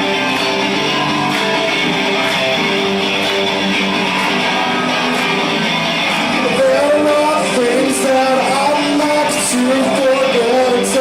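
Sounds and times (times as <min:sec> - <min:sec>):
rock band playing: 0:00.0 - 0:11.0.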